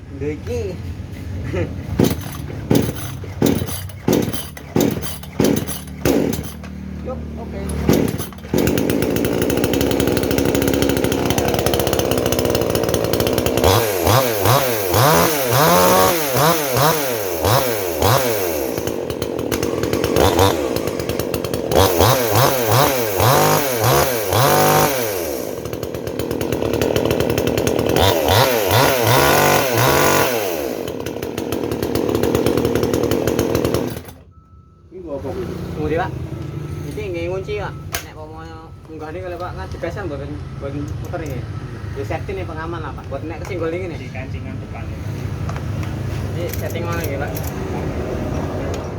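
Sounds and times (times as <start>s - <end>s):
chainsaw engine revving: 1.4s - 34.3s, 43.0s - 48.9s.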